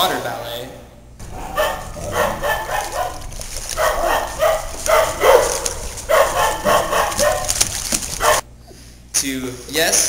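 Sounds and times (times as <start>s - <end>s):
dog barking: 1.2s - 8.4s.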